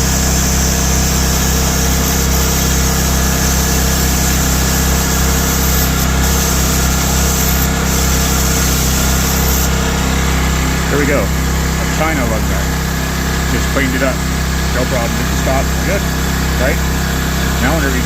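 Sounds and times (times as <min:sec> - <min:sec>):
generator engine running: 0:00.0 - 0:18.0.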